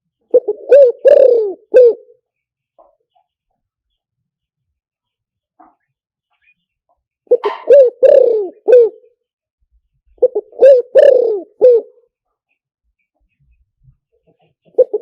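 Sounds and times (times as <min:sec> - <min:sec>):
dove cooing through loudspeaker: 0:00.3 - 0:02.1, 0:07.3 - 0:09.0, 0:10.2 - 0:12.0, 0:14.7 - 0:15.0.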